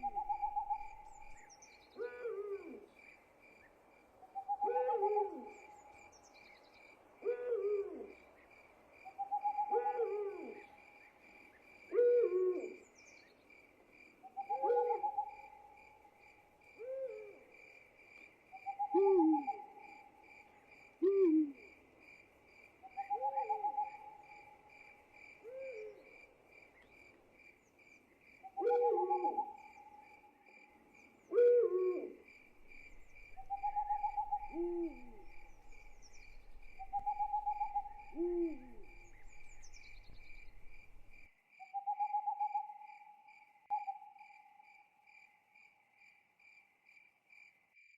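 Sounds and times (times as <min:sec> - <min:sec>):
owl hooting: 0:00.0 - 0:01.4, 0:02.0 - 0:02.8, 0:04.4 - 0:05.7, 0:07.2 - 0:08.2, 0:09.2 - 0:10.7, 0:11.9 - 0:12.8, 0:14.3 - 0:15.6, 0:18.6 - 0:20.0, 0:21.0 - 0:21.7, 0:22.9 - 0:24.6, 0:28.4 - 0:30.1, 0:31.3 - 0:42.9
crickets chirping: 0:00.0 - 0:47.9.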